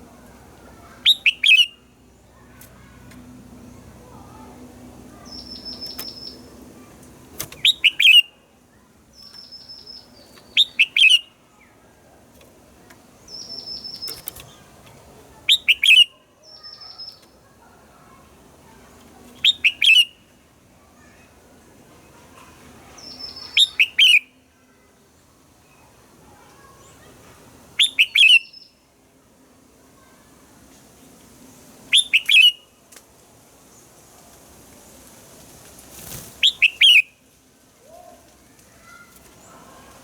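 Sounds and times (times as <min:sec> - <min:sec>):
bird whistled song phrase: 0:01.1 - 0:01.8, 0:07.6 - 0:08.3, 0:19.4 - 0:20.2, 0:23.0 - 0:24.3, 0:27.8 - 0:28.8, 0:31.9 - 0:32.6, 0:36.4 - 0:37.1.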